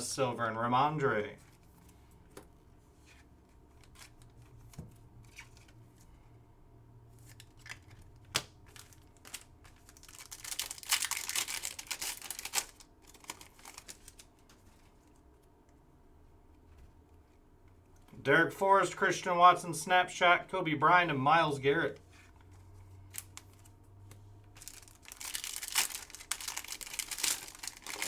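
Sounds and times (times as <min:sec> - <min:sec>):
foil wrapper tearing and crinkling: 0:07.3 - 0:14.3, 0:24.6 - 0:28.0.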